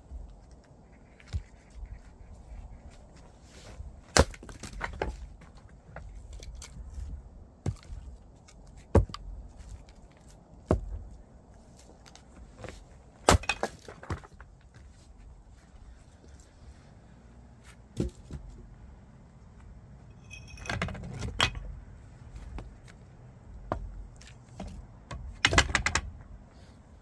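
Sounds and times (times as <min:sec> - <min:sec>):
firewood being split: 0:03.9 - 0:05.6, 0:06.2 - 0:14.7.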